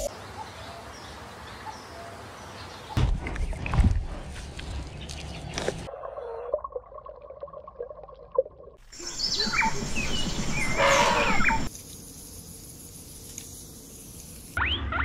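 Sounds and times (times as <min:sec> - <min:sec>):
outdoor rustling: 0:00.0 - 0:06.4, 0:08.8 - 0:14.6
birds chirping: 0:00.0 - 0:06.6, 0:08.8 - 0:11.7.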